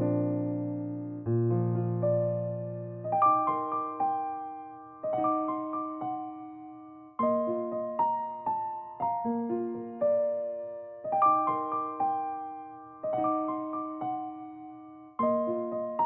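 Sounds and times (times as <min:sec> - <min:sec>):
gentle piano melody with chords: 0:00.0 - 0:16.0.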